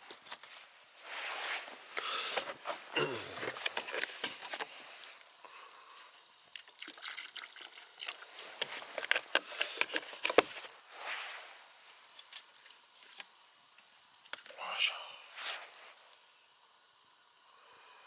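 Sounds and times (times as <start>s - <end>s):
liquid trickling and dripping: 5.8s - 9.8s.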